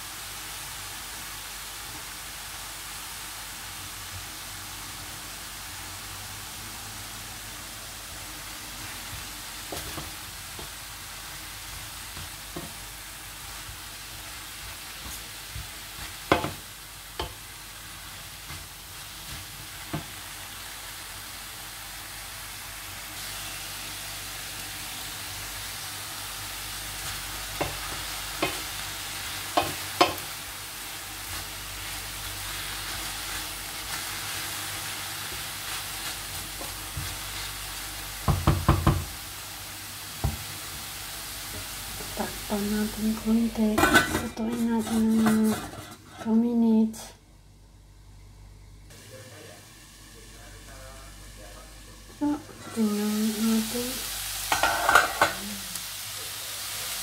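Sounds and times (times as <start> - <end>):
vegetables sizzling in a wok: 0.0 - 57.0
wooden spoon knocking on pan: 15.0 - 16.6, 17.2 - 17.4, 27.6 - 27.8, 28.4 - 28.6, 29.6 - 30.2, 38.2 - 39.2, 40.2 - 40.4, 54.5 - 55.4.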